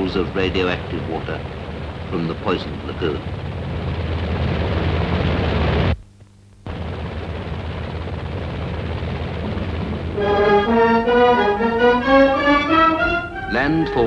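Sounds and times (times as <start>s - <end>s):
steady noisy rumble: 0.0s - 14.0s
orchestral film music: 9.4s - 14.0s.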